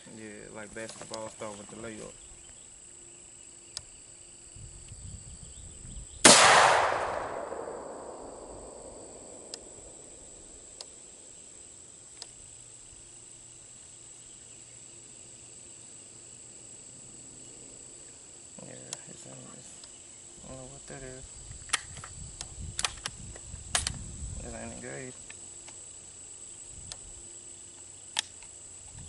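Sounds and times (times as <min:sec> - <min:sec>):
crickets buzzing: 0:00.0 - 0:29.0
rifle shot echoing: 0:06.2 - 0:10.2.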